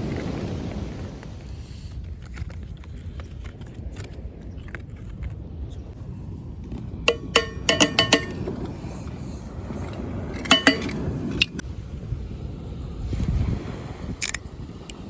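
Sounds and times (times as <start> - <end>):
cookware clinking: 7.1 - 8.5, 10.5 - 11.0.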